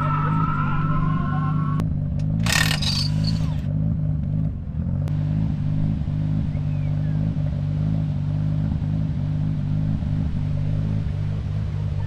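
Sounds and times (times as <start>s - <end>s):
car engine idling: 1.9s - 12.0s.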